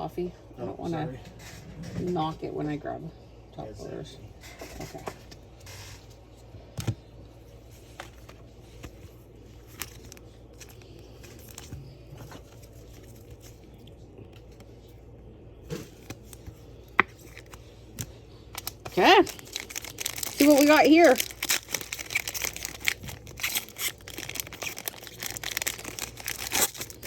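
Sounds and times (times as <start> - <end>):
faint steady hum: 0.0 - 27.0
cards and plastic cases tapping: 16.1 - 17.4.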